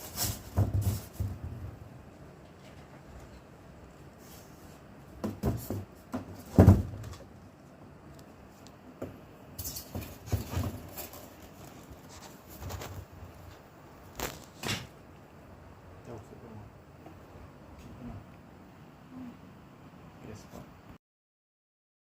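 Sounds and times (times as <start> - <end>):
handling knocks: 5.2 - 7.3
scrapes: 9.6 - 14.6.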